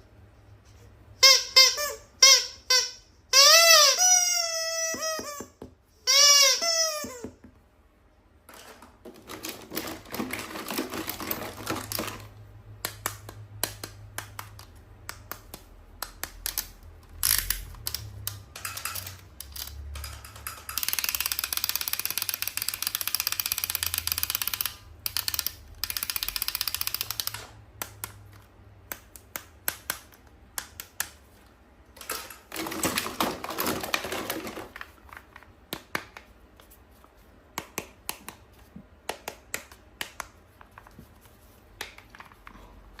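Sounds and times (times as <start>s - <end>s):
plastic toys clicking: 9.0s - 31.2s, 32.0s - 36.3s.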